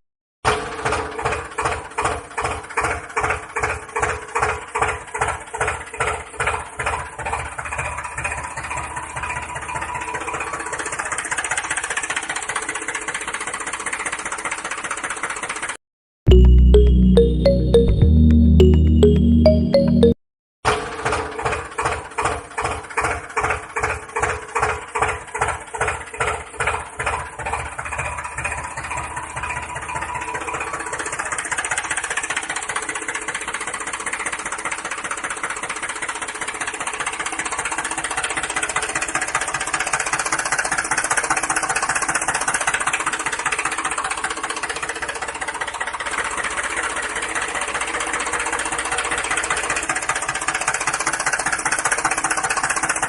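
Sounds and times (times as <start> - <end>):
pulsing sound: 16.3 - 20.2.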